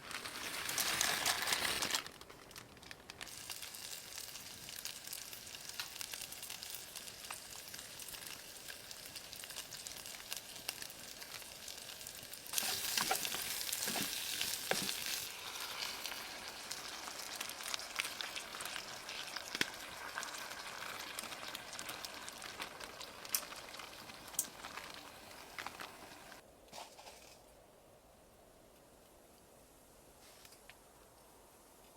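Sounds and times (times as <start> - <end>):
food sizzling in a hot pan: 3.3 - 26.4.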